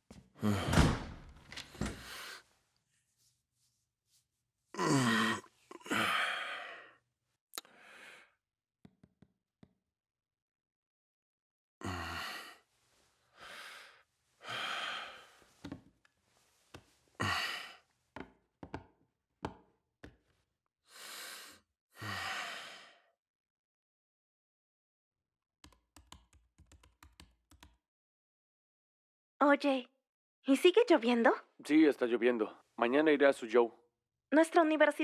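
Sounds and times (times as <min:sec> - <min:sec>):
person sighing heavily: 0:00.4 - 0:01.0, 0:04.8 - 0:06.9, 0:11.8 - 0:12.6, 0:14.4 - 0:15.4, 0:17.2 - 0:17.8, 0:22.0 - 0:23.0.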